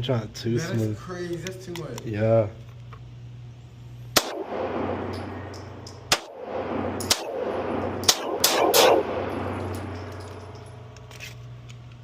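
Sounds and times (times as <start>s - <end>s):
handgun shots with echo: 4.2s - 11.0s.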